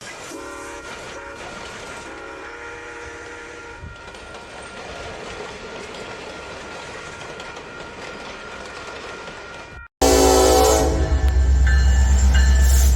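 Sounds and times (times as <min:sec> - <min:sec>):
train rumble and rail noise: 0:00.0 - 0:12.9
locomotive air horn: 0:00.1 - 0:04.1, 0:10.0 - 0:11.6.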